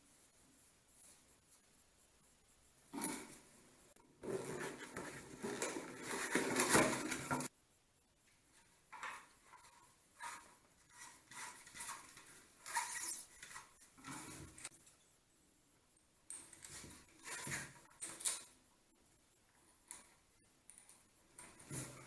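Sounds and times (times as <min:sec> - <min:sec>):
hard objects scraping and rattling: 0:04.2 - 0:07.5, 0:08.9 - 0:14.7.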